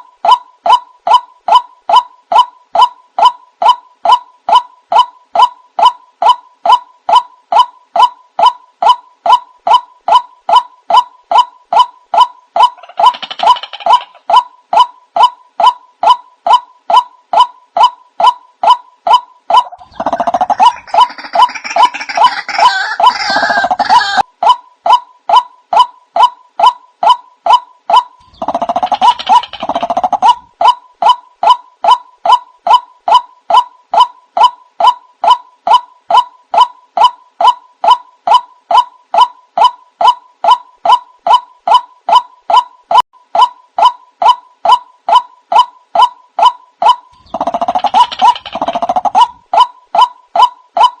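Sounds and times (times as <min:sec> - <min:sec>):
waterhen calls: 0:00.0 - 0:24.3.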